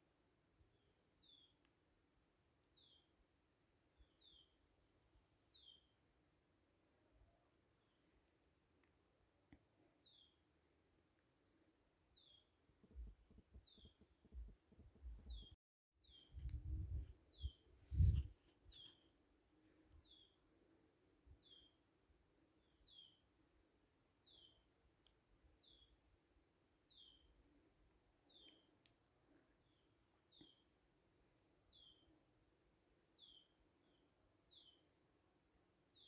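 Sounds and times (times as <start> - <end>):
small bird chirping: 1.2 - 28.7, 29.6 - 36.0
low rumbling thumps: 16.4 - 17.1.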